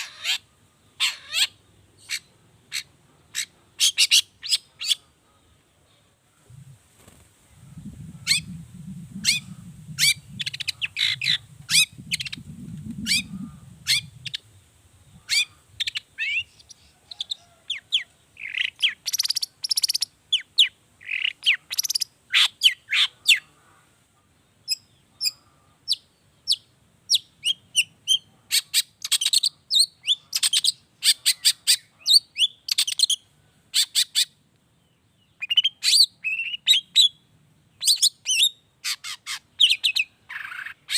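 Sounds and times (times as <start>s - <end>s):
low rumble: 7.5s - 14.3s
bird singing rapid chirps: 7.8s - 17.8s, 18.4s - 23.4s, 35.2s - 40.9s.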